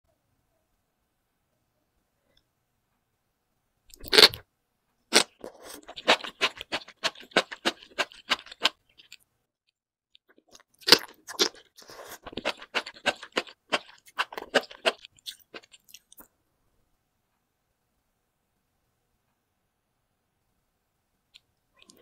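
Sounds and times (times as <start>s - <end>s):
loud bite: 3.9s - 4.4s, 5.1s - 9.2s.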